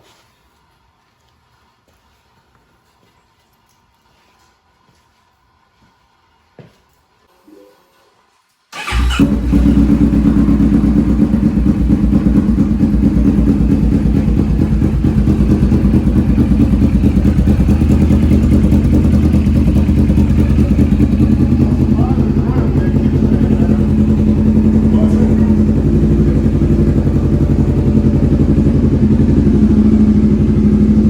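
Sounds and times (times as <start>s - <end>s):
motorcycle engine starting and idling: 8.7s - 31.0s.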